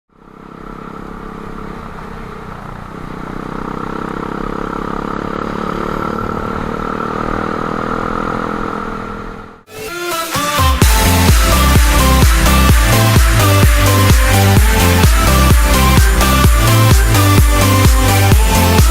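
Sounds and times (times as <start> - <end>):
motorbike engine running: 0.1 - 9.6, 10.8 - 18.9
electronic dance music: 9.7 - 18.9.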